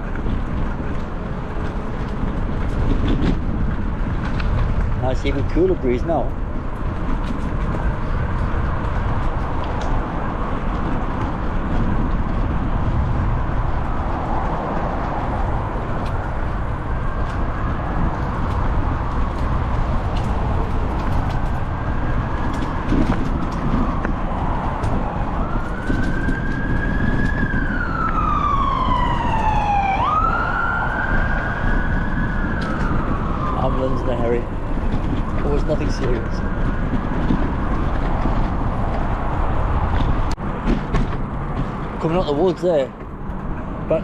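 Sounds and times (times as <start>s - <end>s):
wind rumble on microphone: 0.0s - 44.0s
ambulance siren wailing: 13.2s - 39.8s.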